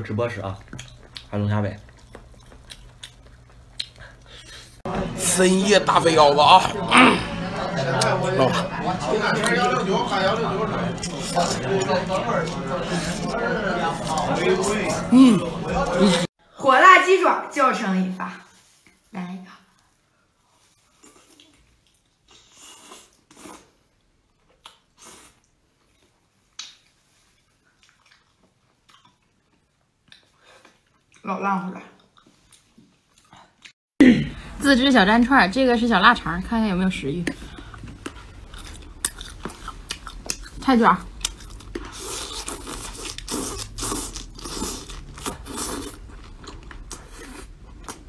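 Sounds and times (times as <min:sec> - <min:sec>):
wet chewing and sucking: 0:00.5 - 0:04.8, 0:37.2 - 0:48.0.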